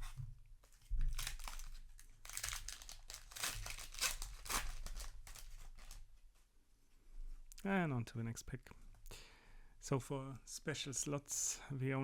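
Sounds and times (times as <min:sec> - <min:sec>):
plastic wrapper crinkling: 0:00.6 - 0:06.2.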